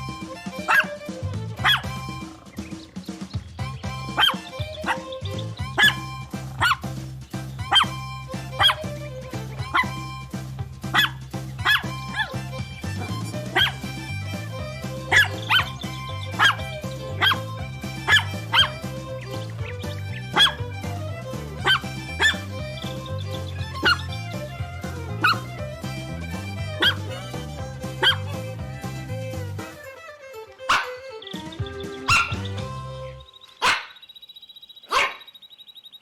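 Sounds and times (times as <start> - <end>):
background music with bass line: 0.0 - 33.4
puppy yapping: 0.5 - 2.5, 3.9 - 6.9, 7.6 - 10.3, 10.9 - 24.6, 25.2 - 25.7, 26.5 - 27.3, 28.0 - 28.4, 30.6 - 32.6, 33.5 - 34.0, 34.9 - 35.3.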